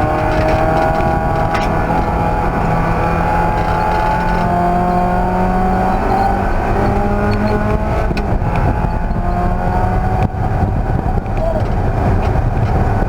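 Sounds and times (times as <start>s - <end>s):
race car engine running: 0.0s - 13.0s.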